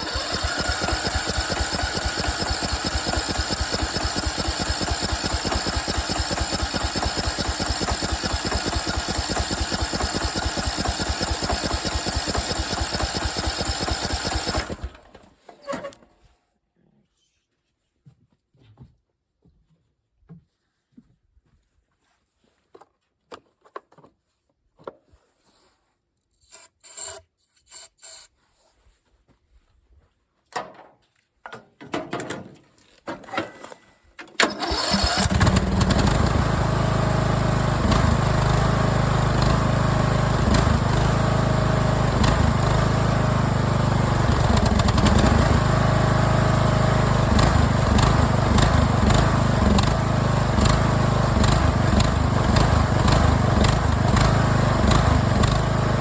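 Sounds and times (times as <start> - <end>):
riding mower engine running: 0.0 - 15.3, 34.4 - 56.0.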